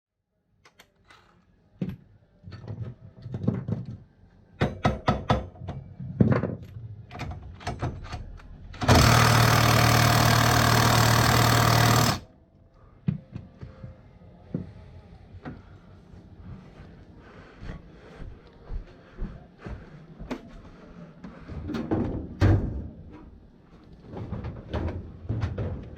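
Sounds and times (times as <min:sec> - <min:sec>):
power tool running: 0:08.8 - 0:12.3.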